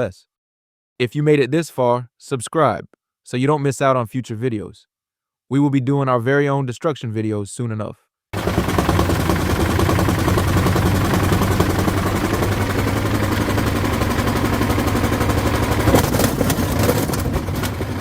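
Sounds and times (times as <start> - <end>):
rapid rattling clatter: 8.4 - 18.0
washing machine motor hum: 8.4 - 18.0.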